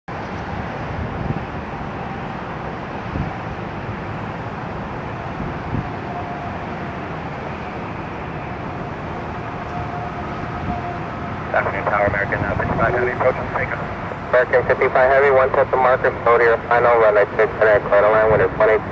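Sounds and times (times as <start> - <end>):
distant jet aircraft roar: 0.1 - 18.9
wind buffeting microphone: 0.2 - 14.8, 17.8 - 18.9
faint steady whine: 11.5 - 18.9.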